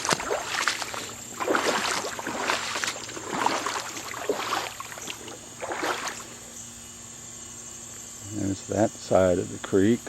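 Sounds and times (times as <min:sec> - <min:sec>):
footsteps splashing in a creek: 0:00.0 - 0:06.5.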